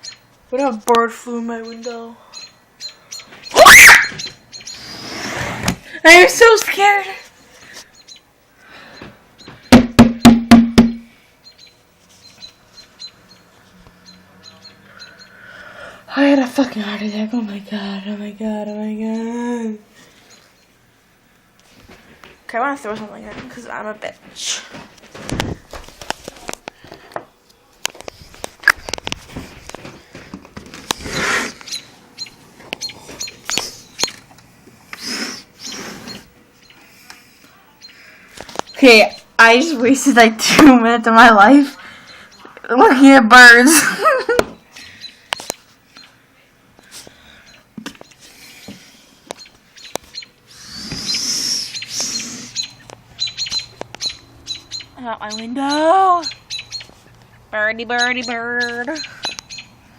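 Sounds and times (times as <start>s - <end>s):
small birds chirping: 0.0s - 10.4s, 11.0s - 21.8s, 30.8s - 59.9s
high bird chirps: 1.5s - 5.0s, 8.9s - 15.4s, 31.6s - 34.2s, 49.4s - 56.9s, 57.9s - 59.8s
sharp knocks with ringing hum: 9.5s - 11.1s.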